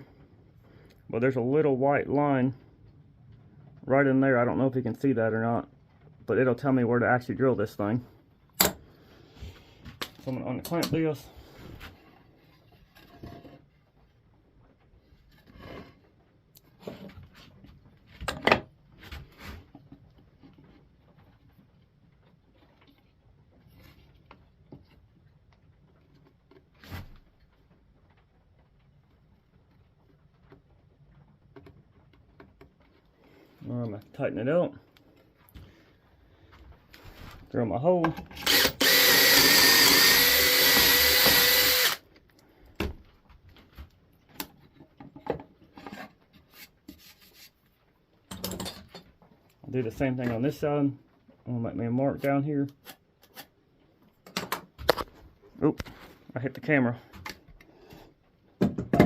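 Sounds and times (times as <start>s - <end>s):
power drill drilling into wood: 38.4s - 42.0s
light tapping and rubbing: 44.6s - 48.0s
handling knocks and clicks: 48.2s - 49.6s.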